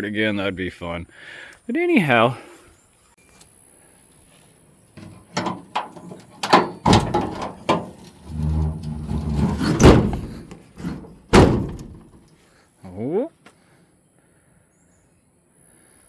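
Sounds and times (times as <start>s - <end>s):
knocks on metal truck body: 5.0s - 12.2s
low creak: 7.0s - 12.1s.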